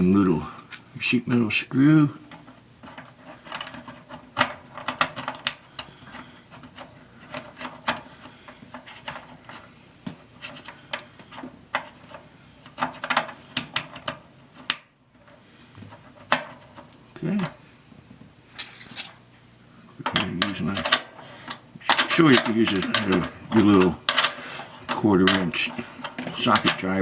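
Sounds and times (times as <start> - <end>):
metal clicks and scrapes: 20.0 - 27.0.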